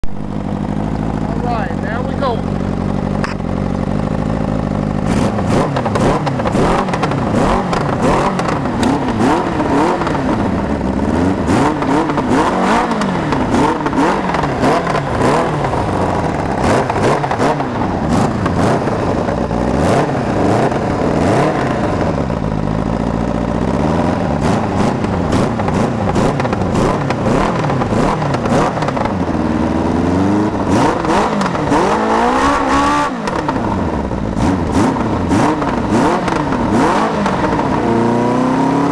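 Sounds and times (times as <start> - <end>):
atv engine revving: 0.0 - 38.9.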